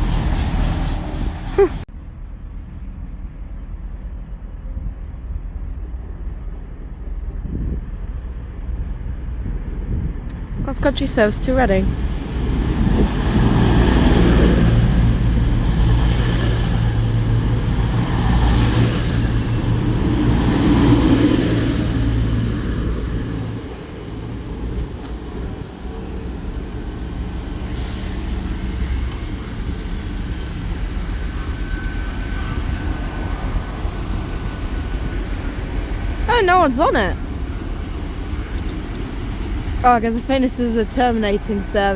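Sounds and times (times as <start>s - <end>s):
diesel train engines running: 0.0s - 41.9s.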